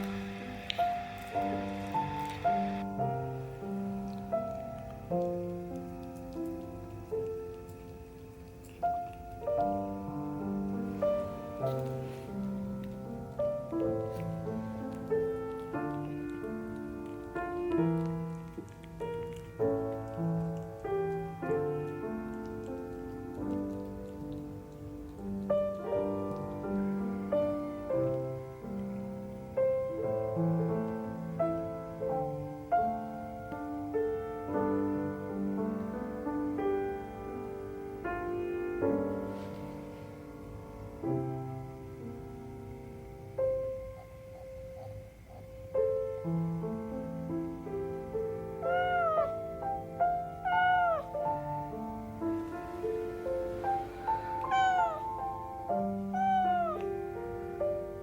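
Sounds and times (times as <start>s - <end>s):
slow solo piano melody: 0.0s - 58.0s
cat meowing: 48.6s - 49.5s, 50.3s - 51.2s, 54.1s - 56.9s.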